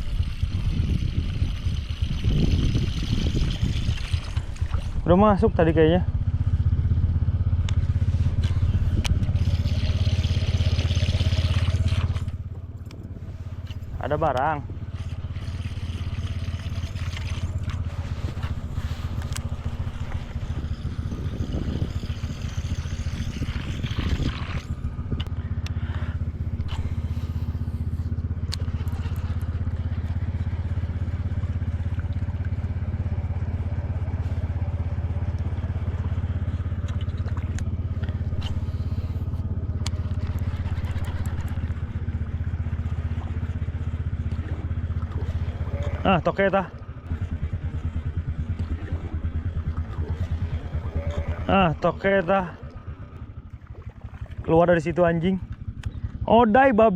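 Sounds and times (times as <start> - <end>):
boat motor humming: 0.0 - 56.9
faint clicks and scrapes: 36.8 - 41.8.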